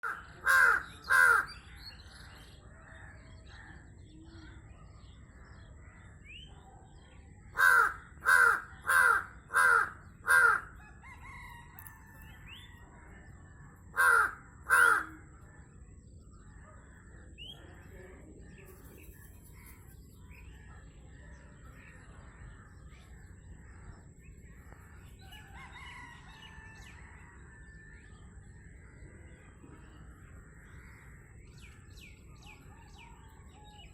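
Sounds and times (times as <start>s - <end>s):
bird giving harsh calls: 0.0s - 1.5s, 7.6s - 10.7s, 14.0s - 15.2s
faint bird chirping: 0.0s - 33.9s.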